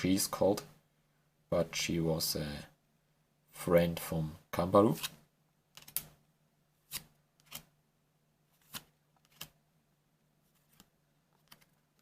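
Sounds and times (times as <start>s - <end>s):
card swishes: 8.6s - 9.6s.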